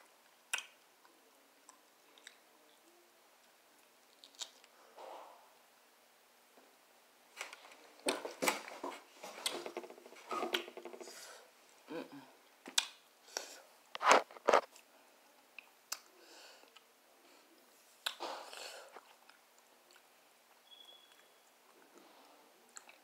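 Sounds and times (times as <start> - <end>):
crunchy chewing and mouth smacks: 0.2 - 2.4, 3.8 - 4.7, 18.0 - 23.0.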